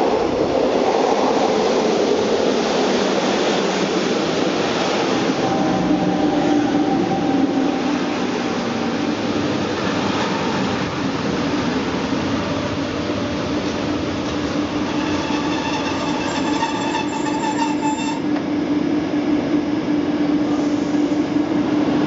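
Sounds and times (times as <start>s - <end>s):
train running with rumble: 0.0s - 22.0s
high squeal: 14.8s - 18.3s.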